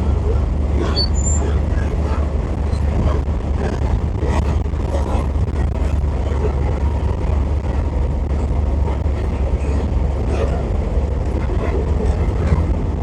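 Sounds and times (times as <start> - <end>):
engine and road noise rumble: 0.0 - 13.0.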